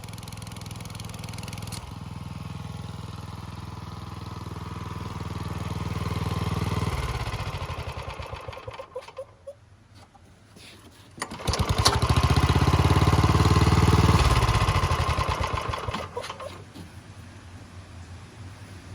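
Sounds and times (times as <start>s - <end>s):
air compressor engine running: 0.0s - 9.2s, 10.8s - 16.9s
engine starting clicks: 6.9s - 9.4s, 11.2s - 16.9s.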